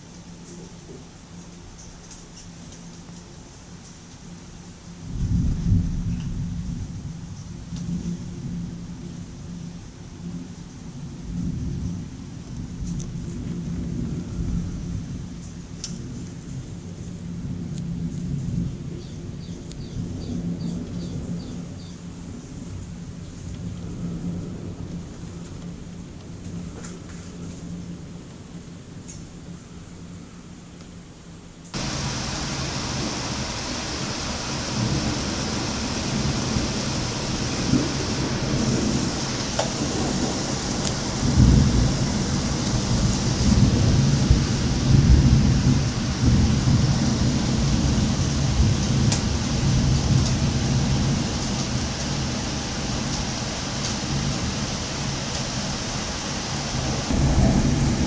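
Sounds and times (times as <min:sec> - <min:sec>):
raindrop ticks: 0:00.0 - 0:04.3, 0:07.4 - 0:07.9, 0:12.6 - 0:13.7, 0:15.4 - 0:16.4, 0:31.6 - 0:41.3, 0:42.6 - 0:43.6, 0:48.2 - 0:54.5
heavy rain pouring: 0:00.0 - 0:29.1, 0:31.7 - 0:58.0
low thunder rumble: 0:04.9 - 0:30.3, 0:31.8 - 0:58.0.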